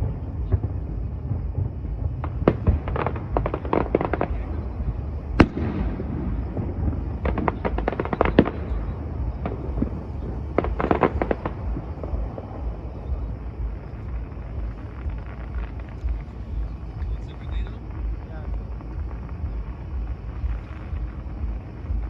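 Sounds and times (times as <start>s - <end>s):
firework bang: 0.0s - 22.0s
fireworks crackling: 0.0s - 22.0s
low rumble: 0.0s - 22.0s.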